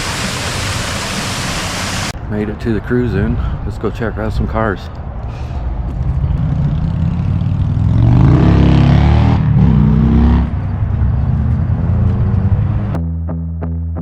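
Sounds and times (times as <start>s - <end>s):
car engine revving: 6.4s - 13.0s.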